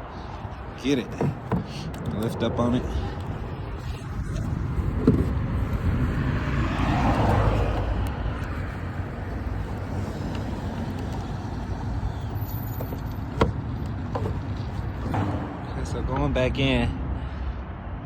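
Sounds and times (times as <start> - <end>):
road vehicle passing: 0.0 - 18.0
steady low rumble: 2.2 - 11.9.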